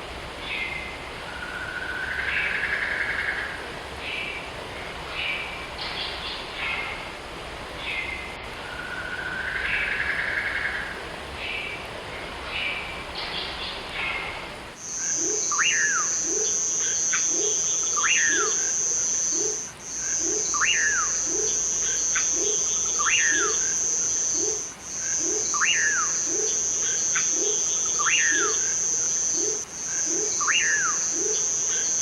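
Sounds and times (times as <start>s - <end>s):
sharp bird call: 14.8s - 27.3s
high-pitched insect trill: 14.8s - 32.0s.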